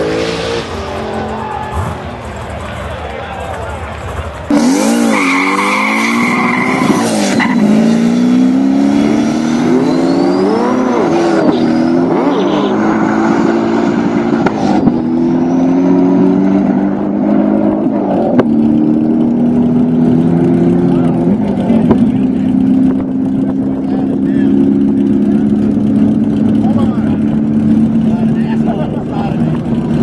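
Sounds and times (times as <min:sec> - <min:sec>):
car engine at full throttle: 0:00.0 - 0:30.0
tyre squeal: 0:04.8 - 0:07.8, 0:09.5 - 0:13.1.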